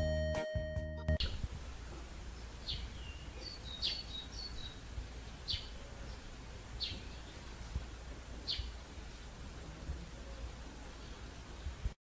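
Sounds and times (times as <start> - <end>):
faint low rumble: 1.2 - 12.0
small bird chirping: 2.2 - 8.9.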